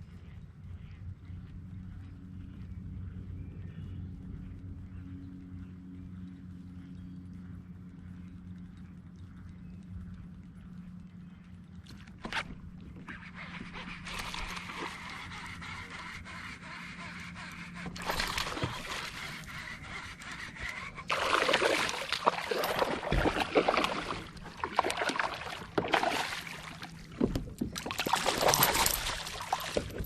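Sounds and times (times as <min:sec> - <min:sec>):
steady low hum: 0:00.0 - 0:30.0
water splashing against boat: 0:11.9 - 0:30.0.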